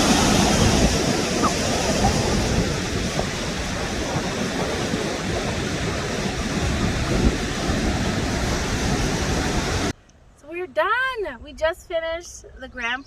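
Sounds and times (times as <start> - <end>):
loud rushing waterfall: 0.0 - 9.9.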